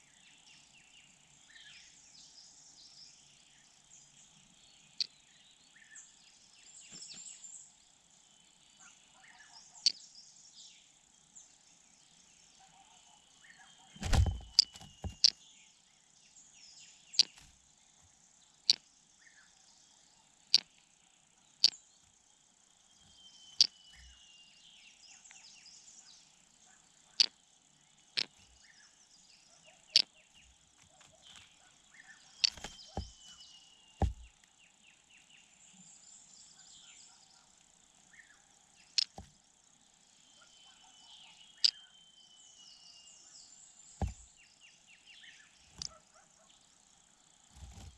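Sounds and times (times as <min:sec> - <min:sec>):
night insects chirring: 0:00.0 - 0:47.9
dull thump: 0:14.0 - 0:15.3, 0:32.5 - 0:33.2, 0:34.0 - 0:34.3, 0:44.0 - 0:44.3.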